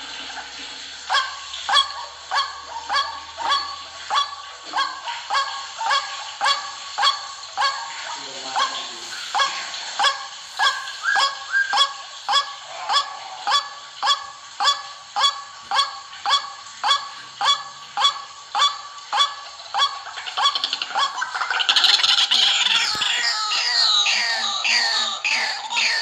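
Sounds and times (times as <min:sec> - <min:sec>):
bird calling harsh honking notes: 0:01.1 - 0:21.4, 0:22.8 - 0:26.0.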